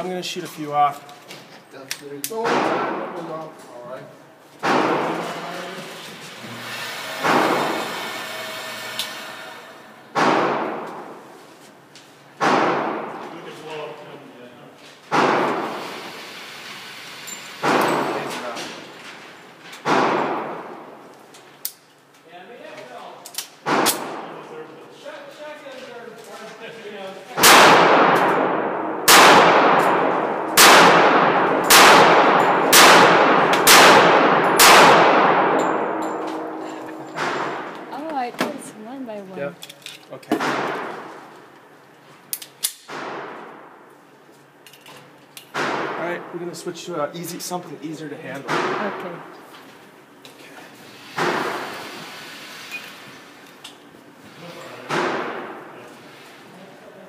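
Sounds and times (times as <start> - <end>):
gunshots echoing: 2.4 - 3.3, 4.6 - 5.3, 10.1 - 11.2, 12.4 - 13.3, 15.1 - 15.8, 19.8 - 21.0, 23.6 - 24.4, 27.4 - 38.0, 40.4 - 41.3, 42.8 - 43.9, 45.5 - 46.4, 54.9 - 55.8
handgun shots with reverberation: 12.4 - 13.2, 27.4 - 37.8.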